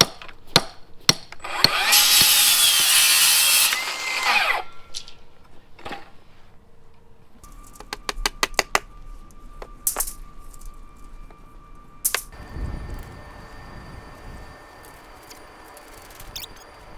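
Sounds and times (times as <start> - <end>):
power tool motor: 1.4 - 5.1.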